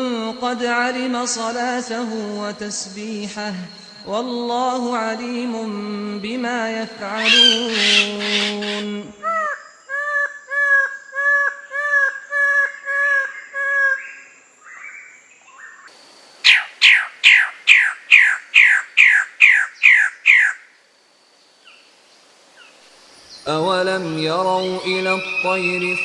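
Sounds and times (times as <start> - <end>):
bird sharply falling calls: 7.1 - 20.7.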